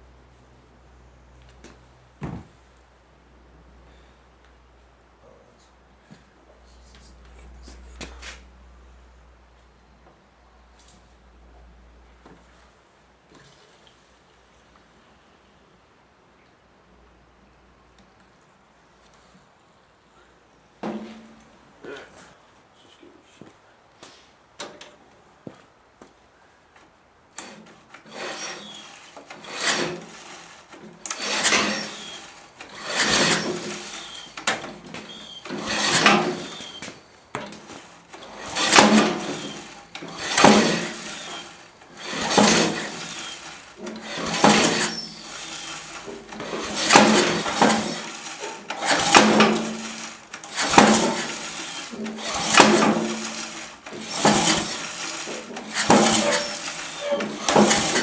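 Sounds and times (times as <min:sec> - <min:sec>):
engine turning over: 0:27.4 - 0:58.0
recoil starter pulls: 0:27.4 - 0:58.0.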